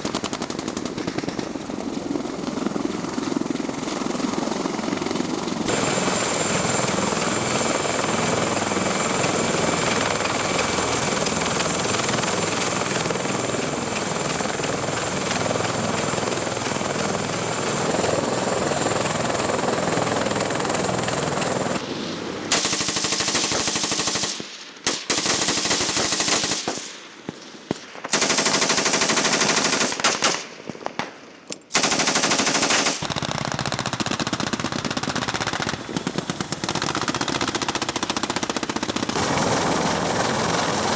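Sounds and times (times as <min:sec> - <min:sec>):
heavy machine gun firing: 0:22.5 - 0:26.8, 0:28.1 - 0:30.4, 0:31.7 - 0:40.9.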